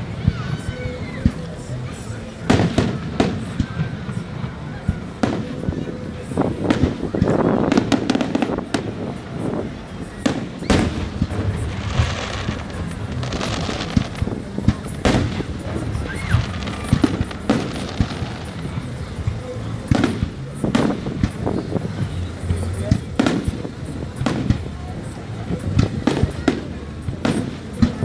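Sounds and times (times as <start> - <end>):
fireworks bangs: 0.0 - 28.0
fireworks crackling: 0.0 - 28.0.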